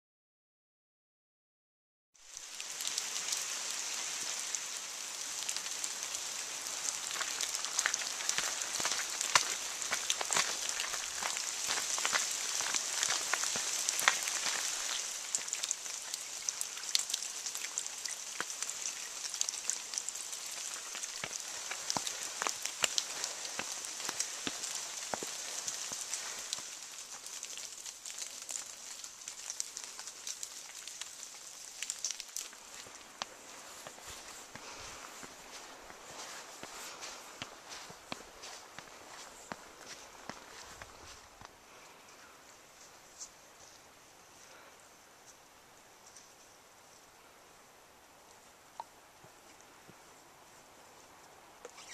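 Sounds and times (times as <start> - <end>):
rain on foliage: 2.2 - 44.7
raindrop ticks: 4.4 - 41.6.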